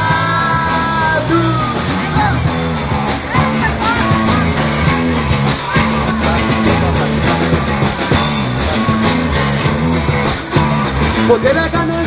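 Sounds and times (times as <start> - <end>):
bass guitar line: 0.0 - 12.0
drum kit beat: 0.0 - 12.0
electric guitar: 0.0 - 12.0.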